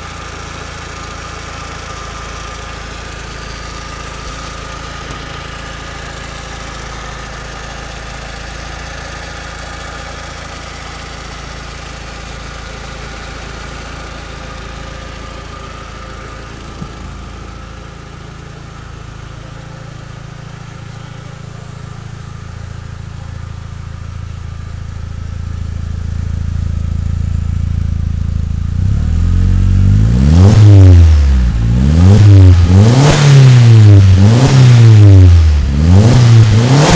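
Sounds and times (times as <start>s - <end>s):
car engine idling: 0.0s - 36.9s
car engine revving hard: 28.7s - 36.9s.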